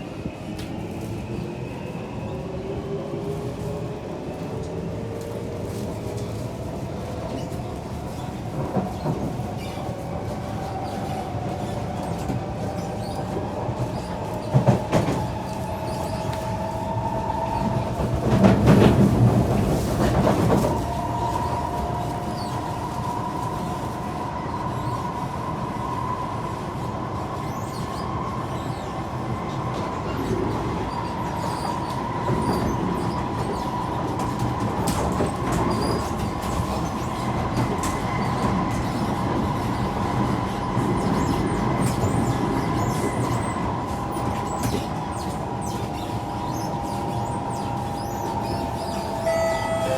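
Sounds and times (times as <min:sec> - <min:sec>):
train wheels rumbling on rail: 0:00.0 - 0:49.8.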